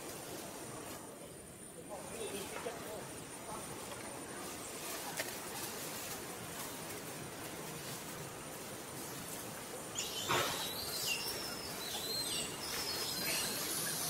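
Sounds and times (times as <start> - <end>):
steady outdoor hiss: 0.0 - 14.0
birds whistling: 9.9 - 14.0.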